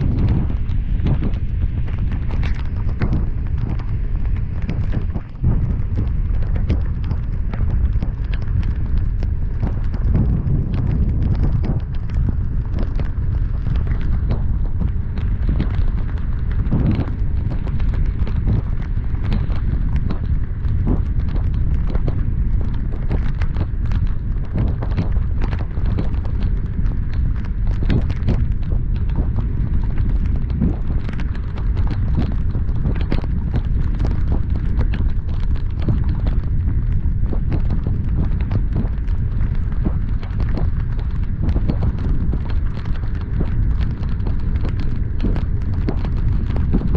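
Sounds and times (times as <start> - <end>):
driving and wind rumble: 0.0 - 46.9
heavy rain tapping on a car: 0.0 - 46.9.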